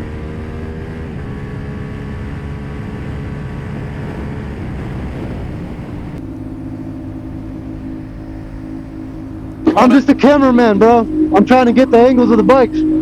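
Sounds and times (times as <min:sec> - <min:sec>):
motorcycle engine running: 0:00.0 - 0:13.0
wind rush: 0:02.2 - 0:06.7.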